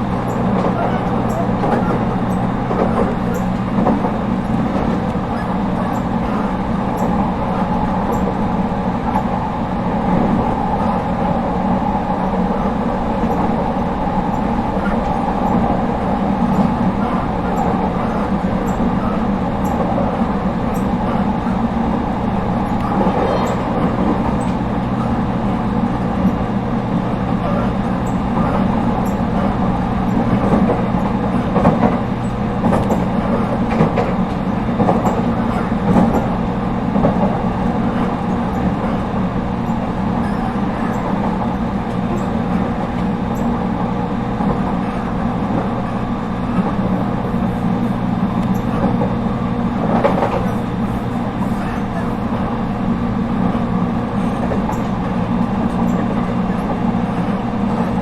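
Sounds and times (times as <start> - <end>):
train wheels rumbling on rail: 0.0 - 58.0
train wheel knocks: 0.1 - 6.2, 30.0 - 36.4, 49.8 - 51.2.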